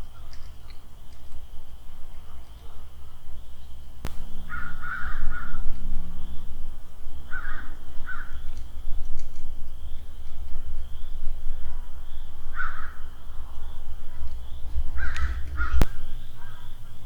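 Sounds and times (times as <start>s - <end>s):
steady high hum: 1.6s - 8.1s, 10.8s - 17.0s
low rumble: 4.1s - 6.9s, 13.7s - 17.0s
crow cawing: 4.3s - 5.8s, 7.3s - 8.4s, 12.5s - 13.1s, 14.9s - 17.0s.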